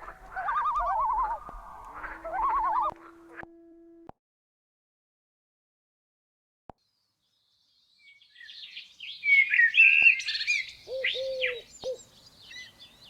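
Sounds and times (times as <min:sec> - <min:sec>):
low cooing: 0:00.0 - 0:03.4, 0:10.9 - 0:12.0
small birds chirping: 0:06.8 - 0:13.0.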